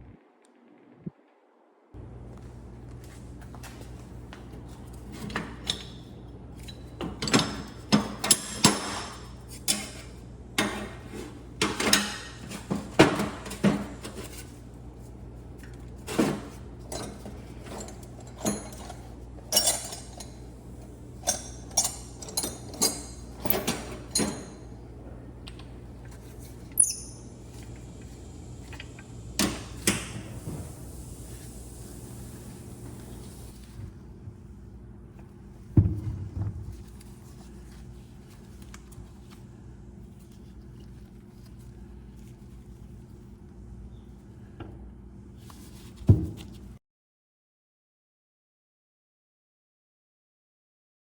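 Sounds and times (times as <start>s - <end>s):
brief high squeak: 26.8s - 27.2s.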